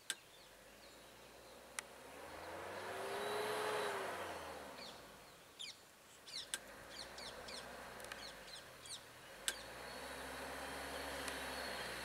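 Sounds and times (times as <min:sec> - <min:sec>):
birds chirping: 0:00.0 - 0:12.0
sharp clicks: 0:09.4 - 0:09.6.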